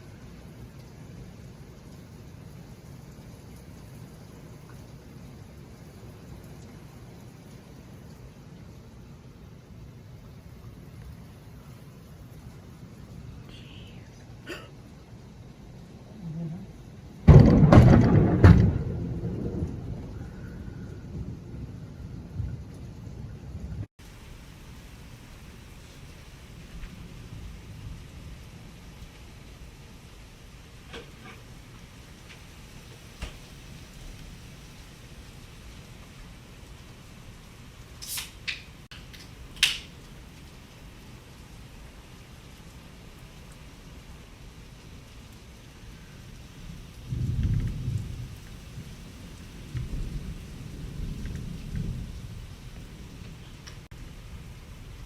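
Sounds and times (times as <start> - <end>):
steady rain falling: 0.0 - 55.0
thunder cracking and rumbling: 17.1 - 23.9, 46.6 - 55.0.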